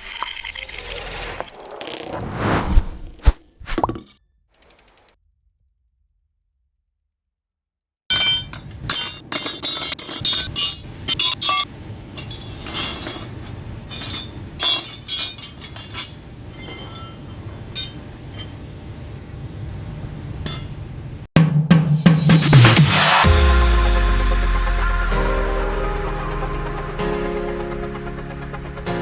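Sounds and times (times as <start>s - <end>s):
low hum: 0.0s - 3.9s, 23.2s - 29.0s.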